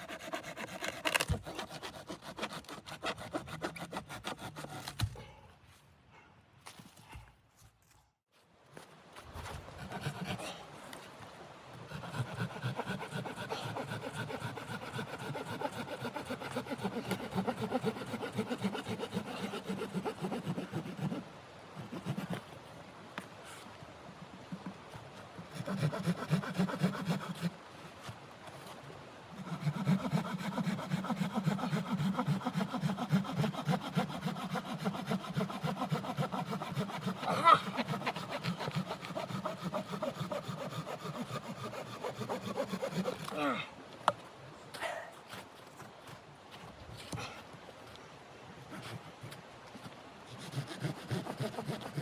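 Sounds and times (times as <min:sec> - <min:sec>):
hand saw cutting wood: 0:00.0 - 0:05.1, 0:09.8 - 0:10.4, 0:11.9 - 0:22.4, 0:25.5 - 0:27.6, 0:29.4 - 0:43.5, 0:50.3 - 0:52.0.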